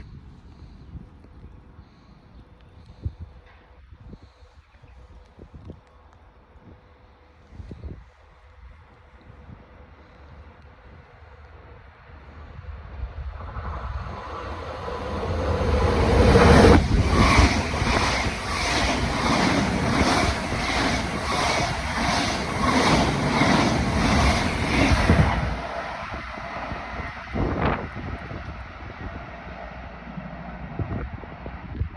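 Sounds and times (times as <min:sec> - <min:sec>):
electric train passing: 0:12.6 - 0:31.8
rhythmic train wheel clatter: 0:14.6 - 0:30.4.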